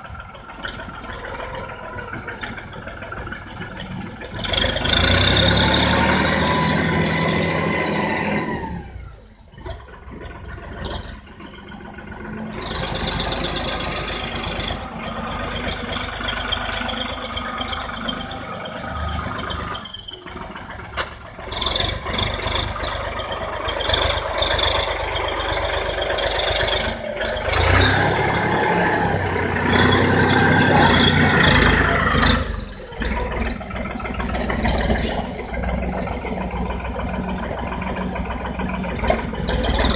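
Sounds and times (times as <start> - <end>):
tractor diesel engine running: 0.0 - 39.9
machinery rattling: 9.3 - 39.9.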